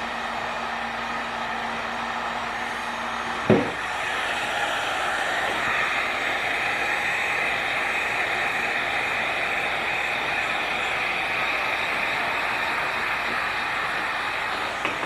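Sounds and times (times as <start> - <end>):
heat gun blowing: 0.0 - 15.0
knock: 3.4 - 3.8.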